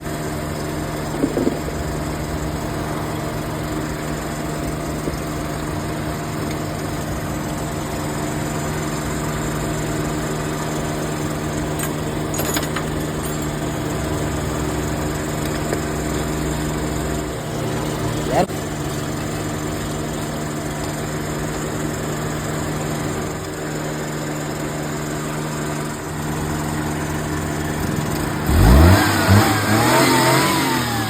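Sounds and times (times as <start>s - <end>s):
old car engine idling: 0.0s - 31.0s
brief engine knocks: 1.2s - 1.9s.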